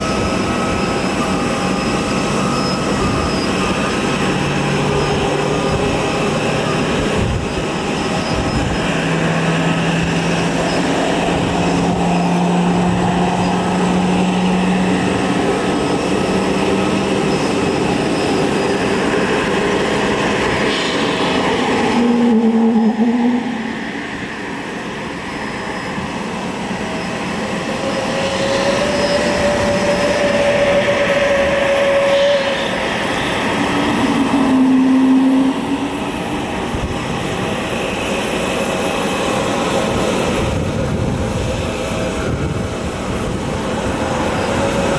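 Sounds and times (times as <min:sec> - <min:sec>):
jet airliner rushing noise: 0:00.0 - 0:44.9
engine tones shifting pitch: 0:20.5 - 0:24.4, 0:27.6 - 0:36.3.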